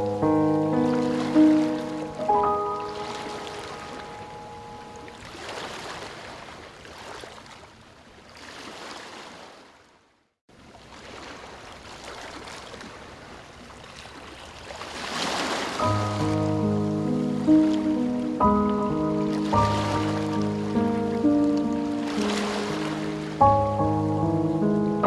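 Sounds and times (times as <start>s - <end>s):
ocean waves washing: 0.0s - 7.3s, 14.3s - 25.0s.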